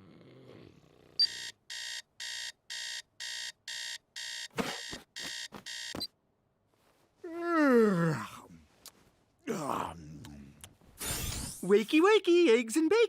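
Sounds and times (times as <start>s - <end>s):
electronic alarm clock beeping: 1.2s - 6.1s.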